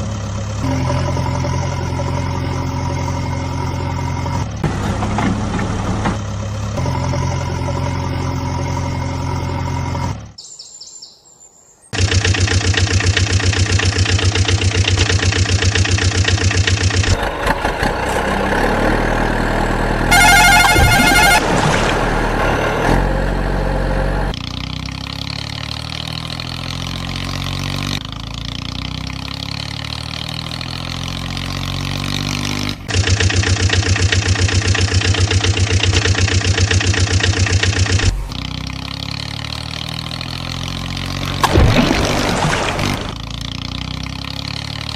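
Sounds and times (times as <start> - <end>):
tractor engines idling and revving: 0.0 - 10.6, 11.9 - 44.9
short warbling tone: 20.1 - 21.5.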